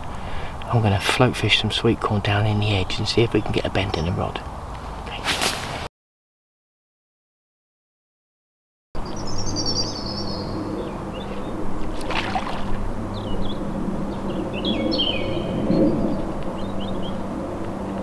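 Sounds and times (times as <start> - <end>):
small birds chirping and singing: 9.0 - 11.7, 13.1 - 17.2.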